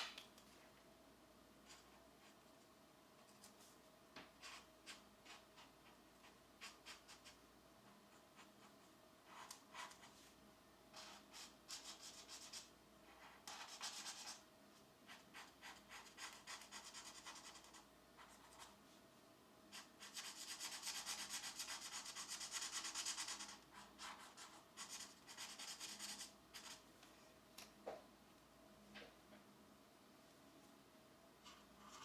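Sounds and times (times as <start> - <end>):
pencil scratching on paper: 8.1 - 10.2, 10.9 - 14.4, 15.1 - 18.7, 19.8 - 26.8, 31.4 - 32.0.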